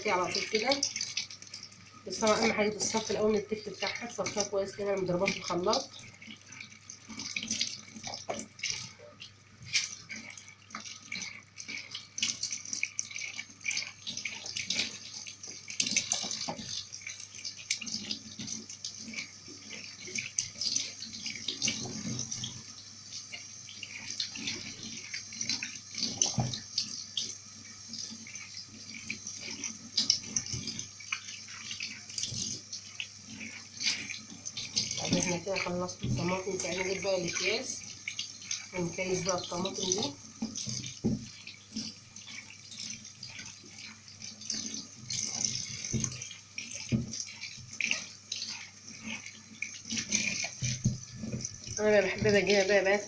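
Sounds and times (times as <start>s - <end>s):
tap running into sink: 7.2s - 9.1s, 13.2s - 16.8s, 25.5s - 27.3s, 33.4s - 37.6s, 38.8s - 41.9s, 44.6s - 48.5s, 49.8s - 52.7s
splashes and knocks: 39.8s - 41.4s, 45.7s - 48.0s, 49.9s - 52.5s.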